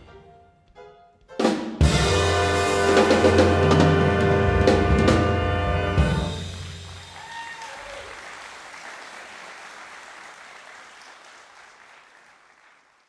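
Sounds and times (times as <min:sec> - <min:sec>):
audience applauding: 0:06.4 - 0:13.0.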